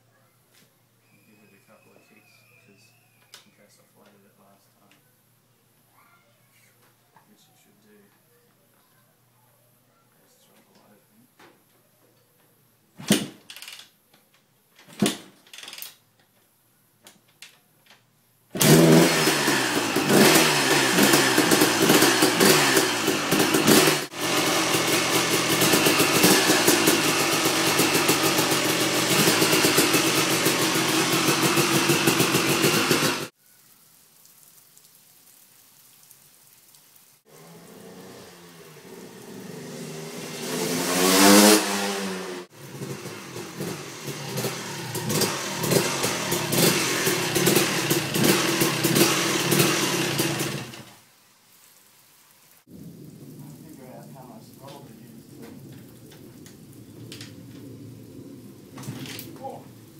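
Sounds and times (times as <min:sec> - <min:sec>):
two-stroke motorcycle engine running: 0:18.6 - 0:33.3, 0:41.5 - 0:50.9.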